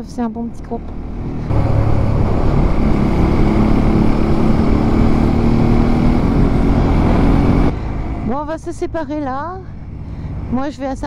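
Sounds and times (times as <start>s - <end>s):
motorcycle engine cruising: 0.0s - 11.0s
wind rush on microphone: 1.1s - 7.8s.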